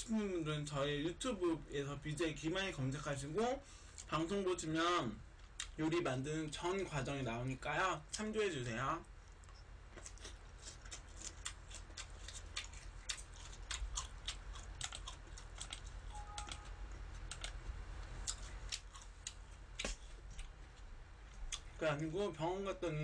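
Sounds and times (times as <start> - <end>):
steady low hum: 0.0 - 23.0
mouth clicks and smacks chewing: 9.2 - 17.6.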